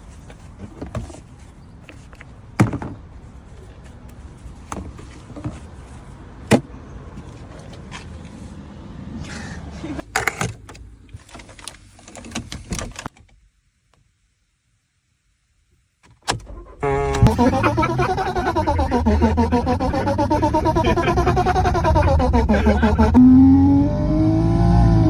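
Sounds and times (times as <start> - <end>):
wavering synthesized tone: 16.8 - 23.2.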